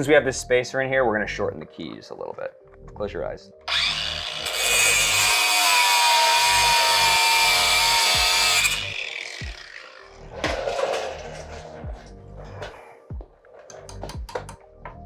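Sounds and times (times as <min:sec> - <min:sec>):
power tool grinding steel: 0:03.7 - 0:11.7.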